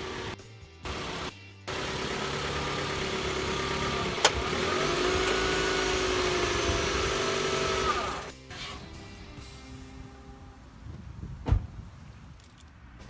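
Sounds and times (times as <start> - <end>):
vehicle engine running: 0.0 - 8.3.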